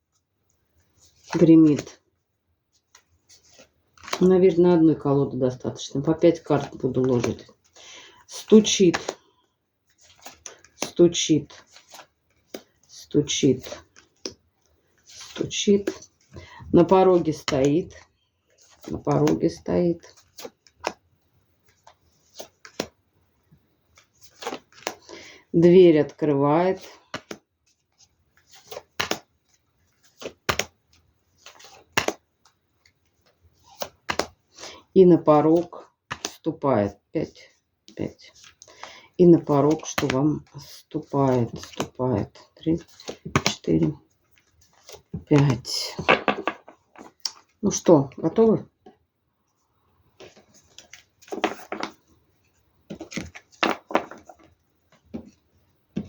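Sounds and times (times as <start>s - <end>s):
cards rustling and slapping: 1.0s - 2.0s, 2.7s - 4.7s, 6.0s - 23.0s, 23.8s - 25.2s, 26.8s - 36.5s, 37.9s - 48.4s, 50.2s - 56.0s
playing cards sliding and snapping: 2.9s - 4.3s, 9.9s - 12.9s, 20.2s - 21.0s, 21.7s - 23.0s, 23.9s - 25.1s, 27.1s - 27.4s, 28.0s - 34.8s, 35.6s - 36.4s, 50.2s - 52.1s.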